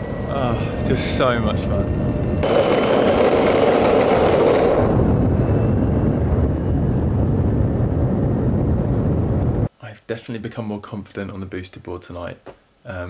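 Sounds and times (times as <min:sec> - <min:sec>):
skateboard wheels rolling on tarmac: 0:00.0 - 0:09.7
wind noise on microphone: 0:00.0 - 0:09.7.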